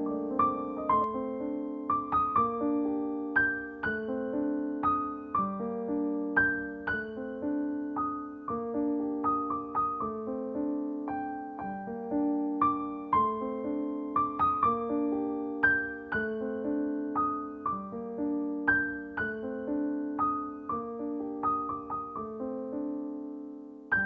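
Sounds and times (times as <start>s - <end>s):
soft piano music: 0.0s - 24.0s.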